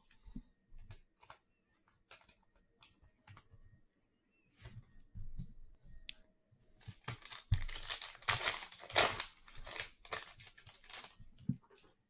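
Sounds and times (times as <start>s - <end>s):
foil wrapper crinkling and tearing: 6.9s - 11.2s.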